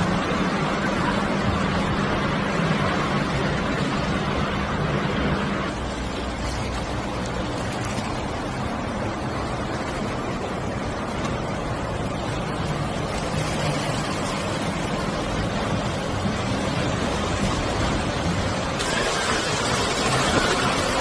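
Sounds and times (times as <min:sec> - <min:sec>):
low engine hum: 0:00.0 - 0:21.0
rushing water: 0:00.0 - 0:21.0.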